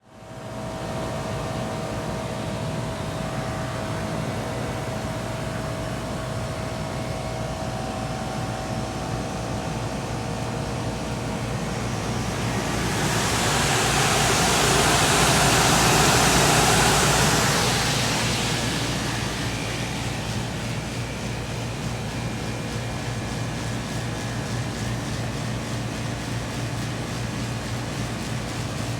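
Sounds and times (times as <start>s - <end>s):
air conditioning unit humming: 0.2s - 28.9s
broad rushing noise: 8.5s - 25.9s
thin steady tone: 11.1s - 22.0s.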